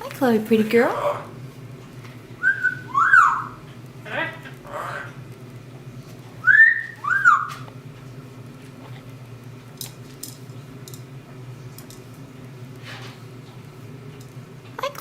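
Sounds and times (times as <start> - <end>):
parrot whistling: 2.4 - 5.1, 6.4 - 7.7.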